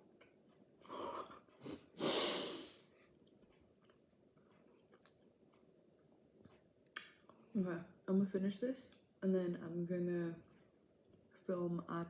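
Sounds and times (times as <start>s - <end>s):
quiet chewing: 2.8s - 7.6s.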